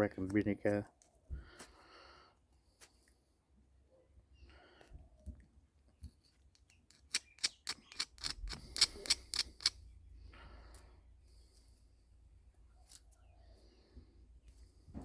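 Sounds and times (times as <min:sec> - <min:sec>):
sharp metallic clicks: 0:06.6 - 0:09.8
tool scratching metal: 0:06.9 - 0:09.8.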